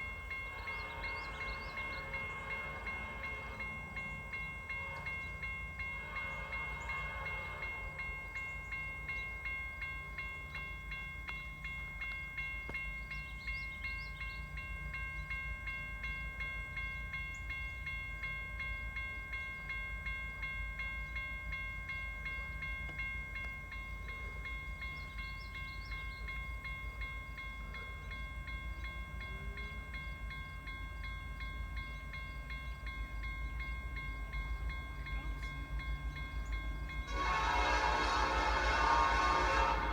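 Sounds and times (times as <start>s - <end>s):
train wheels rumbling on rail: 0.0s - 18.2s, 19.0s - 39.9s.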